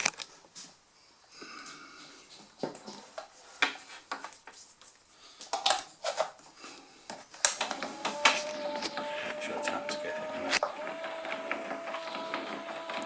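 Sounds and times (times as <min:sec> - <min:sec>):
plastic parts clicking and knocking: 0:05.4 - 0:06.4, 0:07.1 - 0:13.0
motor humming: 0:07.6 - 0:13.0.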